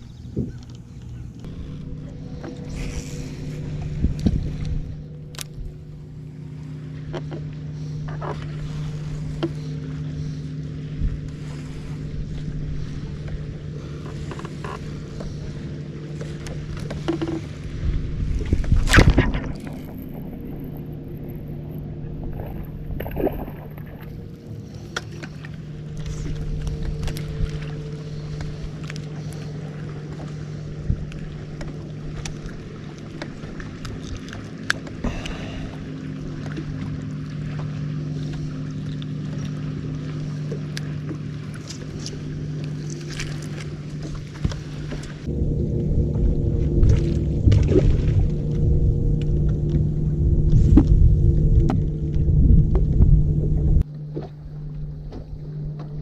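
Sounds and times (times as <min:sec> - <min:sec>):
boat motor humming: 0:00.0 - 0:56.0
water: 0:00.0 - 0:56.0
wind noise: 0:01.5 - 0:05.8, 0:17.5 - 0:23.7, 0:44.5 - 0:53.8.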